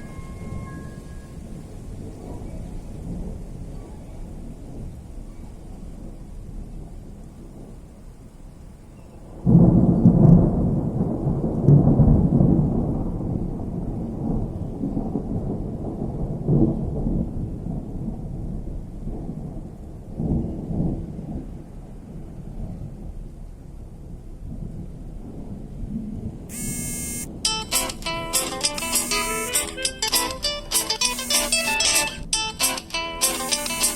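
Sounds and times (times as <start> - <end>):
thunder rumbling: 9.3 - 21.7
rain hissing: 26.5 - 33.9.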